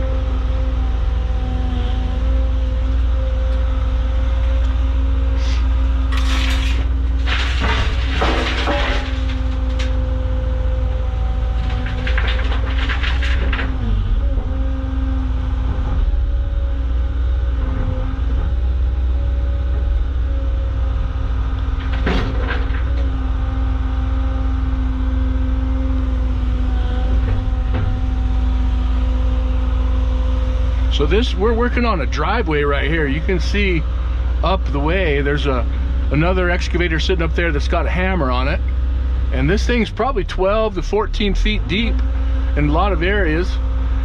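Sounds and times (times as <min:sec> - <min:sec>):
excavator diesel engine running: 0:00.0 - 0:44.0
rock clattering in bucket: 0:06.1 - 0:10.0, 0:11.5 - 0:13.8.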